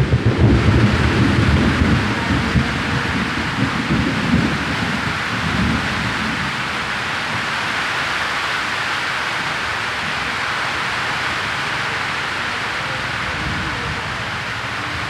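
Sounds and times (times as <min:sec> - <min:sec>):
thunder rumble: 0:00.0 - 0:08.8, 0:12.6 - 0:15.0
heavy rain falling: 0:00.0 - 0:15.0.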